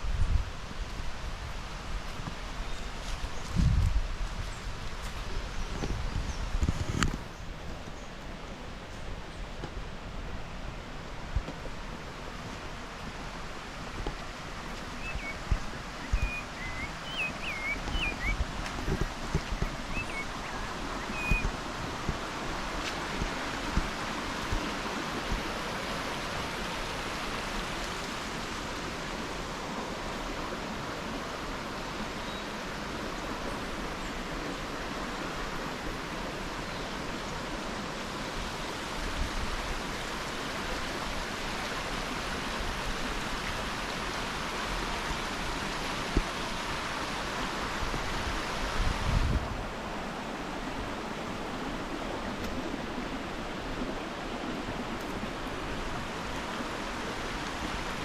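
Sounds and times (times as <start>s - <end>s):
waterfall rushing: 11.8s - 58.0s.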